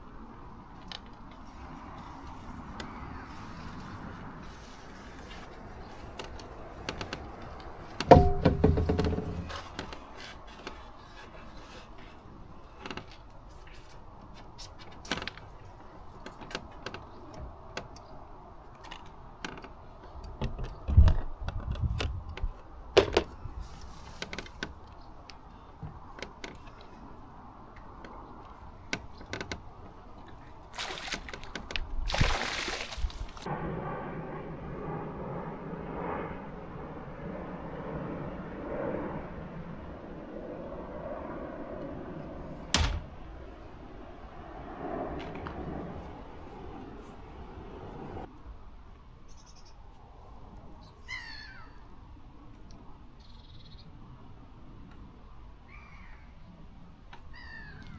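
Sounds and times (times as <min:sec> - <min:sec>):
equipment knocks and clicks: 0:06.2 - 0:10.8, 0:42.7 - 0:43.3
loud ringing knock: 0:08.0 - 0:09.6
heavy thud: 0:08.0 - 0:09.8, 0:42.7 - 0:43.4.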